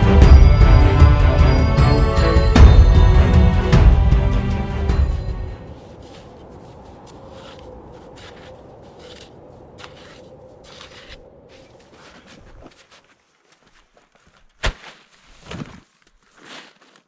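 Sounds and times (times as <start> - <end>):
steady low rumble: 0.0 - 8.7
soft scrapes and crunches: 5.7 - 17.0.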